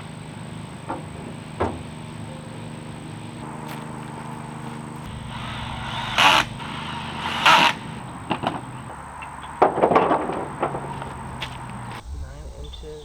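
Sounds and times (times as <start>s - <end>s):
steady low hum: 0.0s - 13.0s
wood scraping: 0.5s - 12.1s
wooden parts knocking and rattling: 0.8s - 2.2s, 8.1s - 12.0s.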